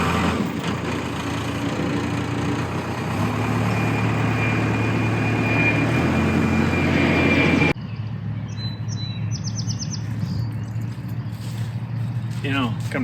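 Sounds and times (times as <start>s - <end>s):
diesel engine running: 0.0s - 13.0s
low engine hum: 0.0s - 13.0s
high-pitched whine: 3.4s - 8.6s.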